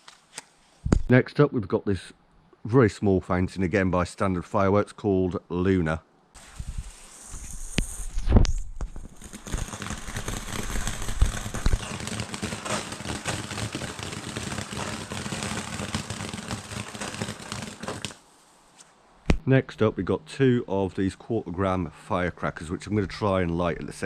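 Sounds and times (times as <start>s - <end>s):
firework fountain hissing: 6.4s - 18.2s.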